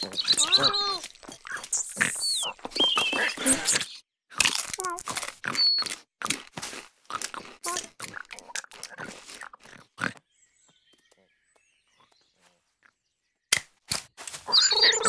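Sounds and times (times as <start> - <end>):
crunching and chewing: 0.0 - 10.3.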